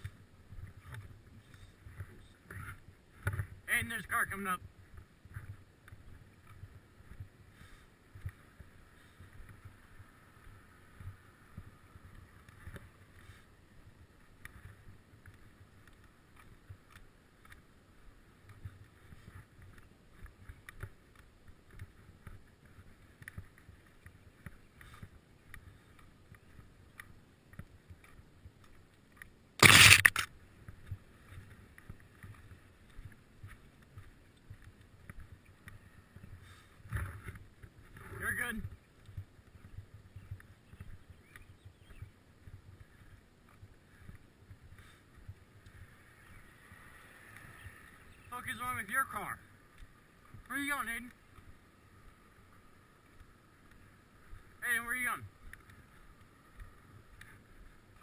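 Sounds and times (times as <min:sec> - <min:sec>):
loud sudden noise: 0:29.6 - 0:30.3.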